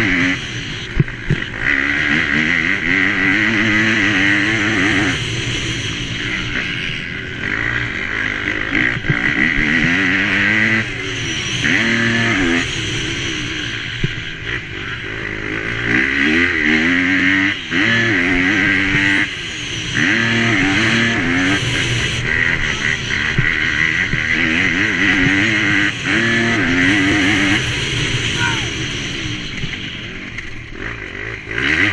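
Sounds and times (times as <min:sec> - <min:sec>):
motocross bike engine revving: 0:00.0 - 0:31.9.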